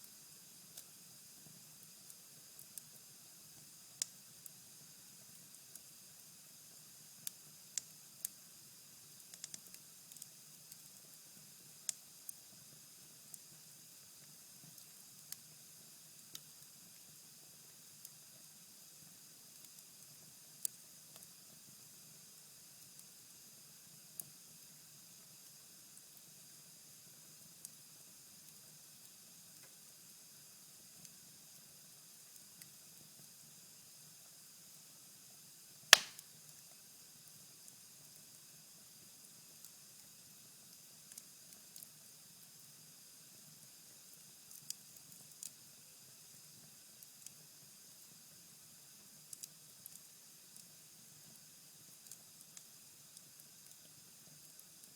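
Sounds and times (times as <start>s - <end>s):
fire crackling: 35.9s - 36.2s
embers hissing: 36.0s - 36.2s
loud sharp pop from fire: 36.0s - 36.3s.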